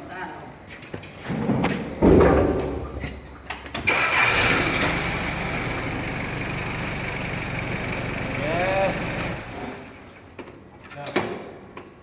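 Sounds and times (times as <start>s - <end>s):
loud low clunk: 2.0s - 3.2s
machine motor whining: 3.9s - 9.9s.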